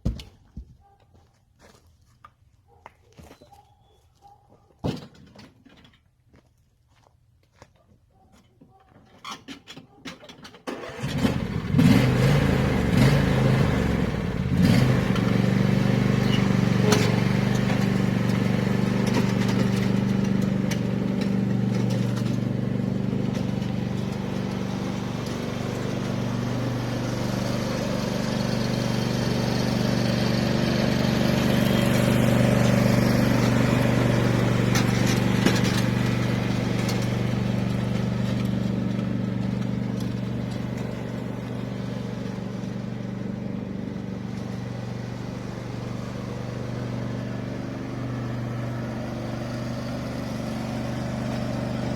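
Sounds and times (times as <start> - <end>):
engine running steadily: 10.7 - 51.9.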